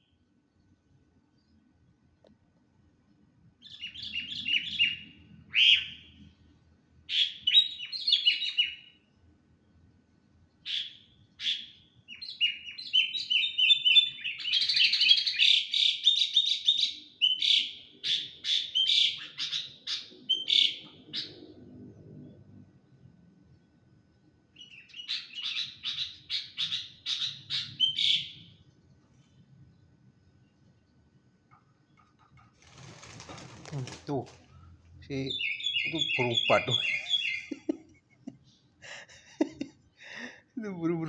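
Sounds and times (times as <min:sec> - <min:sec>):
bird chirping rapidly: 0:24.6 - 0:28.5, 0:35.1 - 0:37.7.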